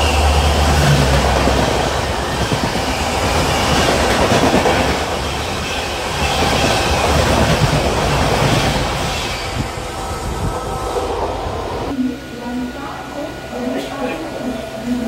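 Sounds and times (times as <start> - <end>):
train wheels clattering: 0.0 - 11.4
train rushing past: 0.0 - 15.0.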